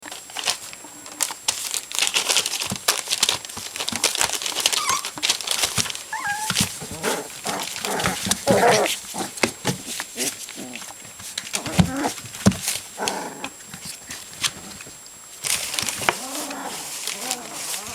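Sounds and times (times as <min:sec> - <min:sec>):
puppies scuffling and clicking: 0:00.0 - 0:17.9
puppy whimpers: 0:04.7 - 0:05.2, 0:06.1 - 0:07.2.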